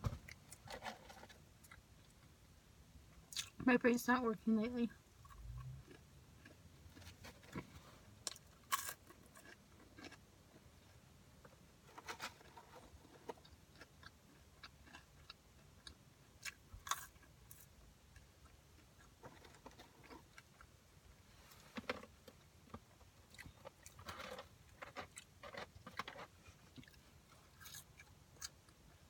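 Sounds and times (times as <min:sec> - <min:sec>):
chewing crunches: 0:05.2 - 0:10.7, 0:12.4 - 0:20.7, 0:23.3 - 0:28.8.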